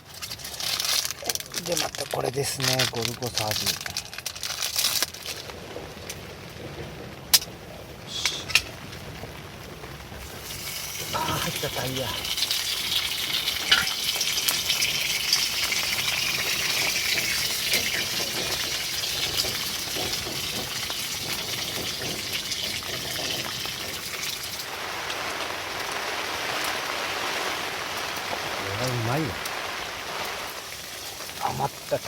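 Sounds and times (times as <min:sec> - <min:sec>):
oil sizzling in a tin: 0:10.2 - 0:32.0
sharp popping of oil: 0:12.2 - 0:24.6.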